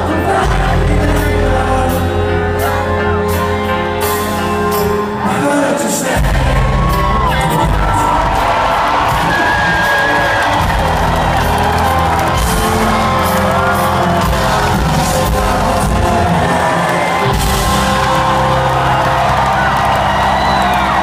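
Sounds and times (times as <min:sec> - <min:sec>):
crowd singing along: 0:00.0 - 0:03.2, 0:05.0 - 0:21.0
live rock band playing: 0:00.0 - 0:21.0
crowd whooping: 0:06.2 - 0:21.0.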